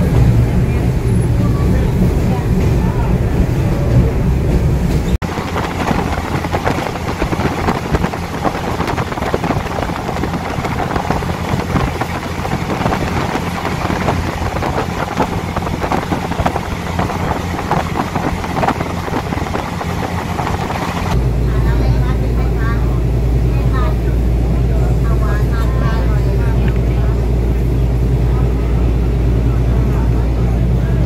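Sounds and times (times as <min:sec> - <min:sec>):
train running noise: 0:00.0 - 0:31.0
wind rushing: 0:01.7 - 0:21.4.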